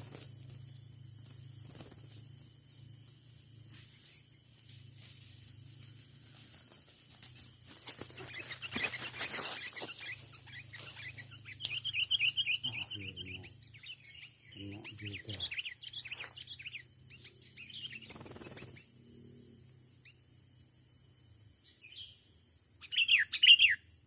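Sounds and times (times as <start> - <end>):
rustling and wing fluttering: 0.0 - 12.4, 17.8 - 18.9
birds chattering calls: 5.6 - 19.0.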